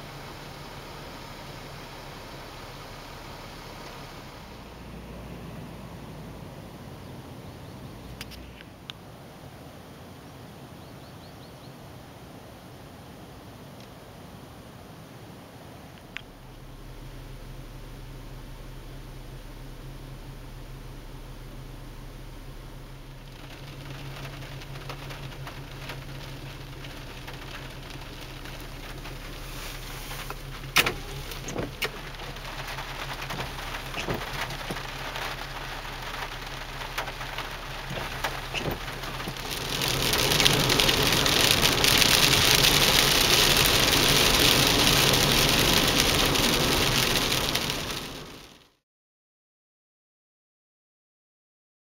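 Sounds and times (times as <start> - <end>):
rain falling: 0.0 - 10.8, 11.8 - 48.8
heavy downpour hiss: 0.0 - 48.8
raindrops tapping: 23.0 - 48.6.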